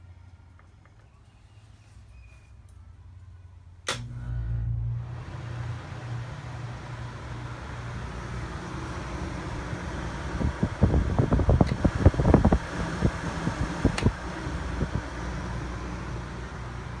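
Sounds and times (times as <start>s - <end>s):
air conditioner low hum: 0.0s - 17.0s
air conditioner fan rush: 3.7s - 17.0s
relay click: 3.9s - 4.3s.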